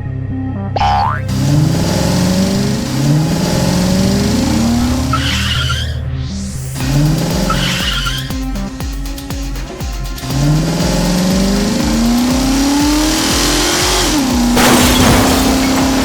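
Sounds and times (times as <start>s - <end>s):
background music: 0.0s - 16.0s
cartoon engine revving: 0.8s - 6.0s, 6.8s - 8.4s, 10.3s - 14.7s
tyre skid hiss: 1.3s - 16.0s.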